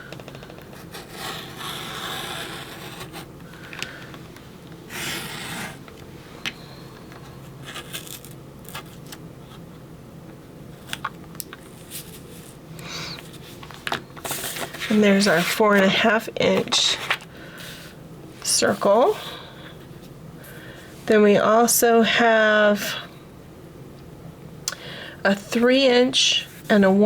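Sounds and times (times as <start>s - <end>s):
blade scraping cardstock: 0.7s - 3.3s, 4.9s - 5.9s, 7.6s - 9.0s.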